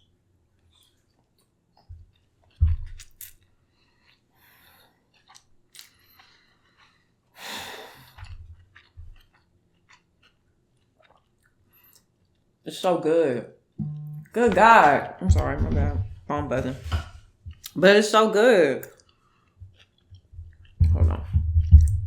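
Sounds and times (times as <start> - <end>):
chewing and mouth clicks: 0.7 - 7.1, 8.0 - 12.5, 18.8 - 20.8
low thumps: 13.8 - 17.7, 20.4 - 22.0.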